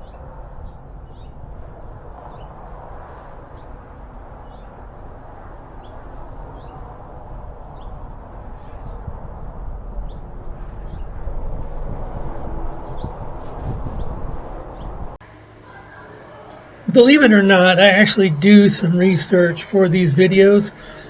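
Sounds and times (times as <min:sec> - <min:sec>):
small birds chirping: 0:00.0 - 0:01.4, 0:04.4 - 0:04.8
low outdoor rumble: 0:00.0 - 0:21.0.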